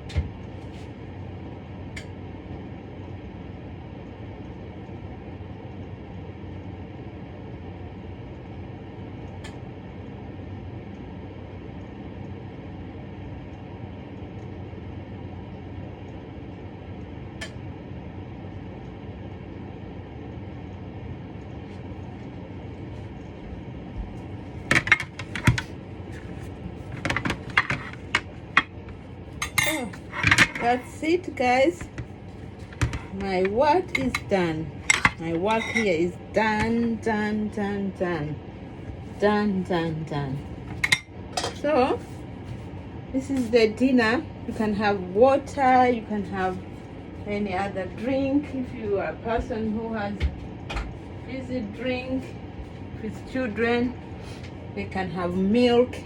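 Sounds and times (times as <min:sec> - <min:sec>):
low background hum: 0:00.0 - 0:56.0
dishes and utensils clinking: 0:29.4 - 0:30.8, 0:32.8 - 0:34.3, 0:34.9 - 0:36.0, 0:40.8 - 0:41.6.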